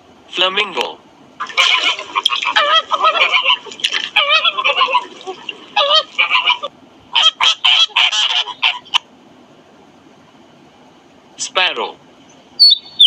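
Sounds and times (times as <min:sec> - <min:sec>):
flamingos honking: 0:01.4 - 0:09.0.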